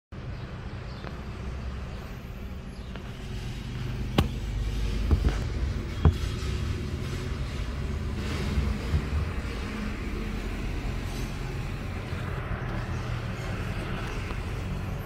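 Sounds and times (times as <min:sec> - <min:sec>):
car engine humming: 0:01.2 - 0:15.0.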